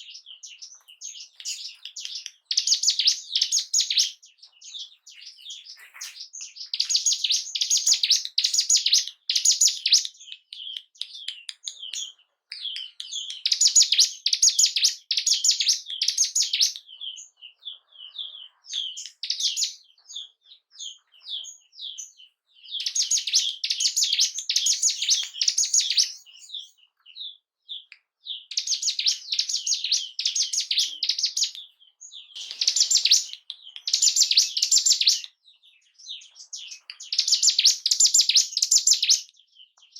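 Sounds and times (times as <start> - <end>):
bird singing rapid high notes: 0.0 - 39.3
single bird chirps: 0.0 - 39.9.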